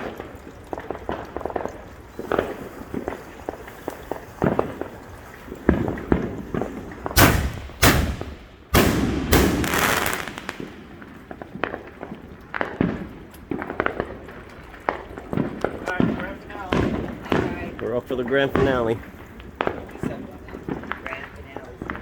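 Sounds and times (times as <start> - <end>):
firework crackle: 0.0 - 22.0
fireworks popping: 0.0 - 22.0
loud firework bangs: 5.6 - 14.1, 15.3 - 17.7.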